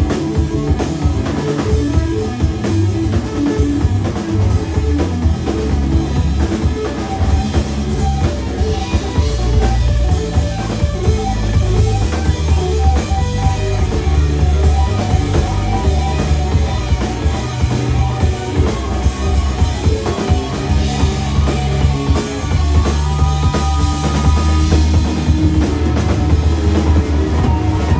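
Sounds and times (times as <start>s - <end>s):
rock band playing live: 0.0s - 27.9s.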